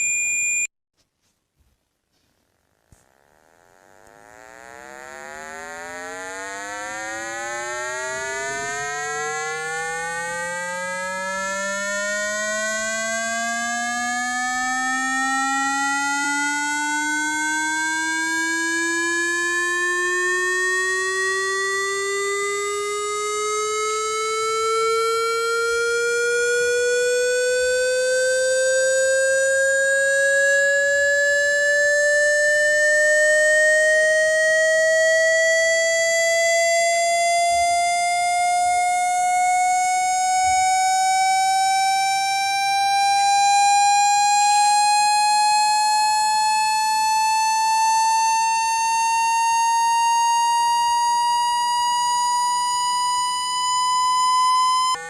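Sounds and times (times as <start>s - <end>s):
buzzy electronic tone rising: 3.1s - 13.5s.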